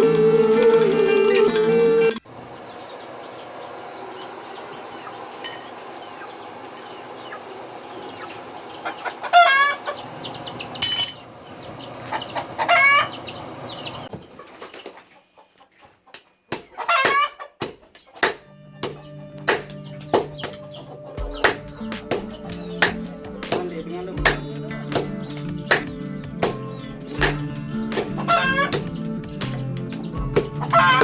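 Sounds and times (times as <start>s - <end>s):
chickens calling: 0.0s - 31.0s
sharp knocks: 16.5s - 31.0s.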